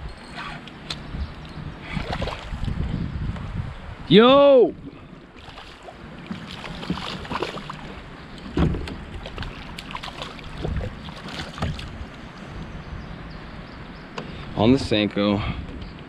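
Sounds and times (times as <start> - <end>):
water splashing around kayak: 0.3 - 2.9, 4.8 - 12.8.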